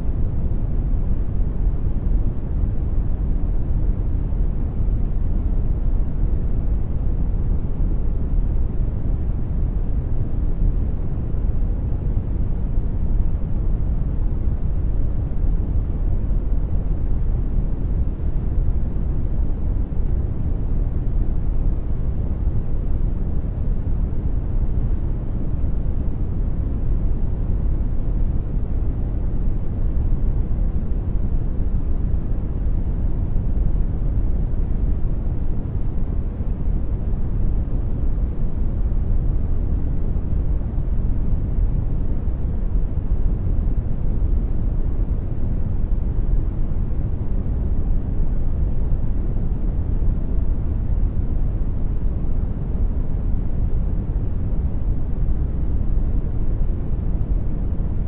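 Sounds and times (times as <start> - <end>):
brown noise rumble: 0.0 - 58.0.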